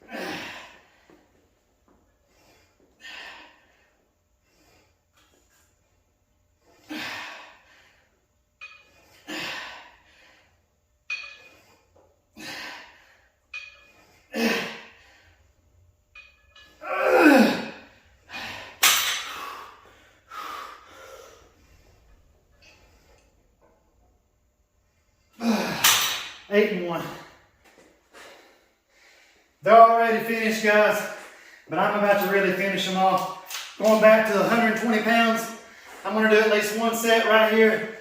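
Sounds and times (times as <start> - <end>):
man breathing hard: 2.3 - 5.1, 17.2 - 23.3
man grunting and groaning: 16.8 - 18.5, 25.4 - 26.1.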